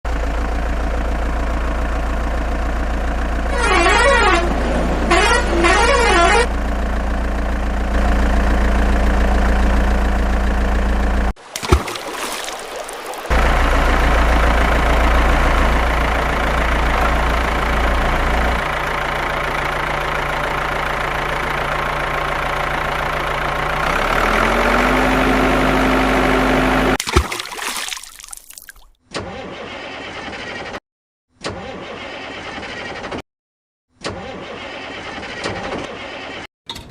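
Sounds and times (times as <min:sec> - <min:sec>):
vehicle engine running: 0:00.1 - 0:11.4, 0:13.3 - 0:27.0.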